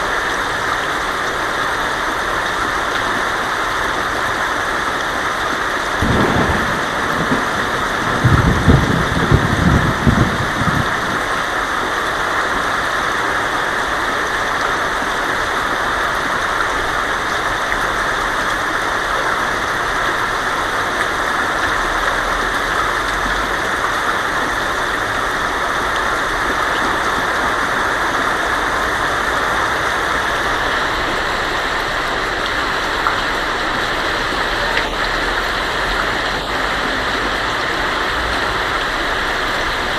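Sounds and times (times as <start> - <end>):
heavy rain on a tin roof: 0.0 - 39.9
thunder rumbling: 6.0 - 11.8.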